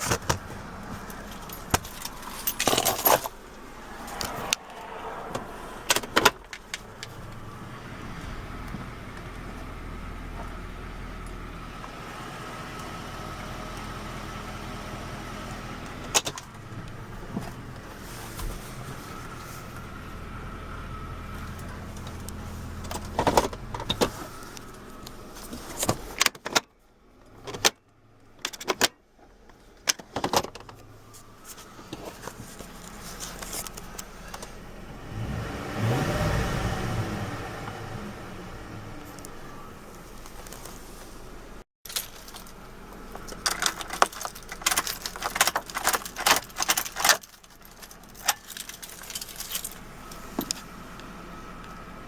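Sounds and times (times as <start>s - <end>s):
truck engine idling: 0.0s - 25.7s, 38.3s - 52.0s.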